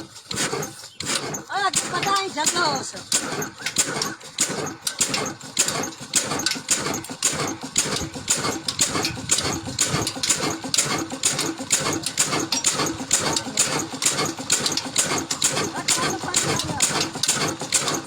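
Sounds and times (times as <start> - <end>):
water pump engine thudding: 0.0 - 18.0.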